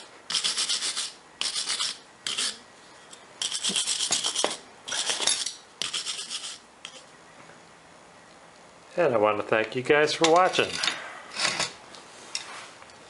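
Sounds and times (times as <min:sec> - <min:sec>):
hand tool scraping steel: 0:00.3 - 0:07.1, 0:10.2 - 0:11.8.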